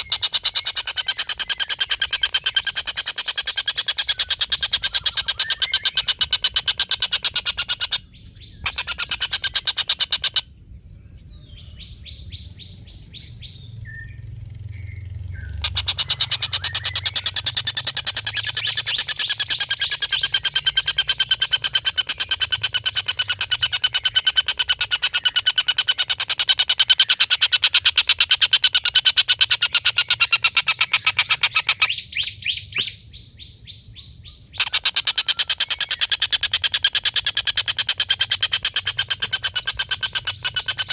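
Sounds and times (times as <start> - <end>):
kingfisher cackling call: 0.0 - 8.0, 15.5 - 31.9.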